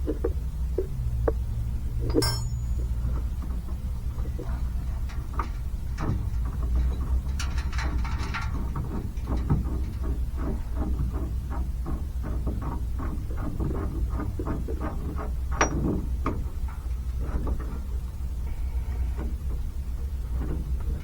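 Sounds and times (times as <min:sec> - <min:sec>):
steady low hum: 0:00.0 - 0:21.0
metal tapping and scraping: 0:02.0 - 0:18.1.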